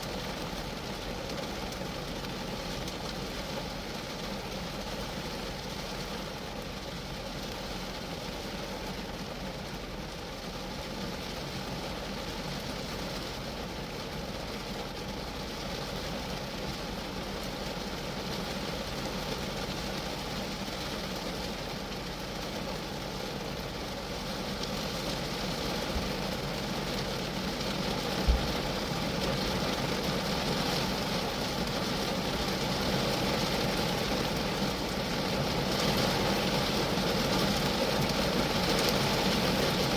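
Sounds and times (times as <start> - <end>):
rain on a car body: 0.0 - 39.9
low thump: 28.2 - 28.6.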